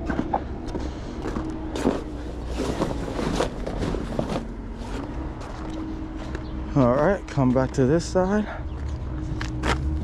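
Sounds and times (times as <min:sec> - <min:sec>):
tarp rustling and scraping: 0:01.8 - 0:05.6.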